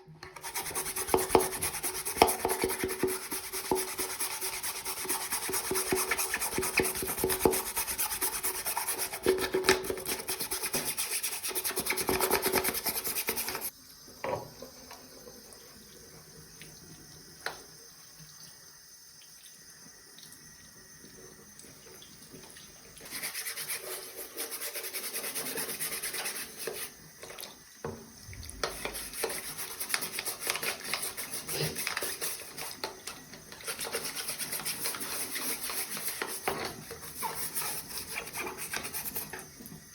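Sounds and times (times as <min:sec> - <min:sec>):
scrubbing coffee maker parts: 0:00.3 - 0:13.7, 0:23.0 - 0:27.4, 0:28.4 - 0:39.8.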